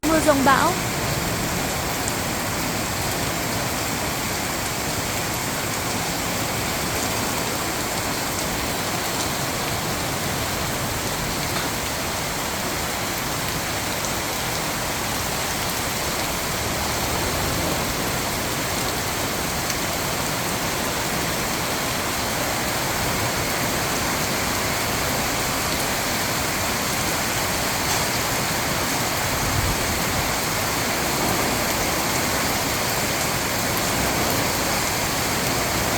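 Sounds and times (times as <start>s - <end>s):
heavy rain pouring: 0.0s - 35.9s.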